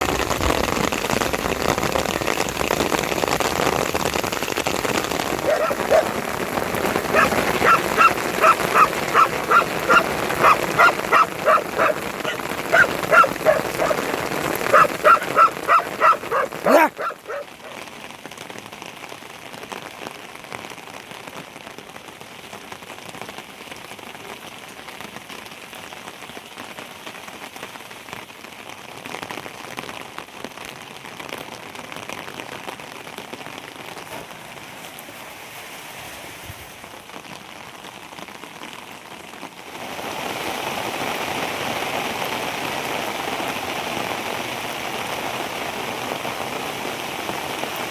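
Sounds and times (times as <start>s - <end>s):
steady rain falling: 0.0s - 47.9s
dog yapping: 4.9s - 17.8s.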